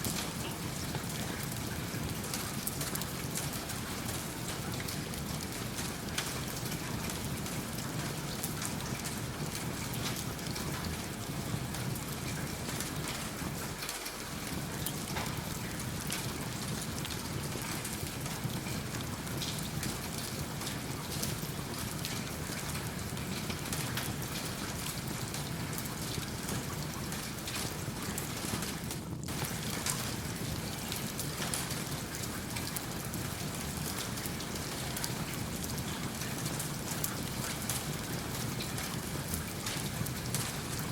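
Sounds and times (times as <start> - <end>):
steady rain falling: 0.0 - 40.9
wood fire crackling: 11.9 - 40.9.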